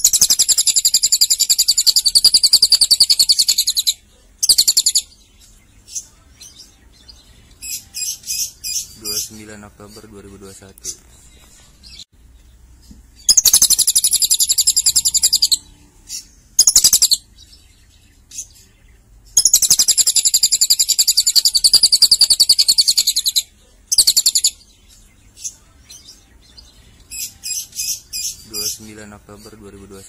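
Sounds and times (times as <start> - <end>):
lovebird chattering trills: 0.0 - 5.2, 13.2 - 17.3, 19.4 - 24.7
bird chirps: 0.0 - 30.0.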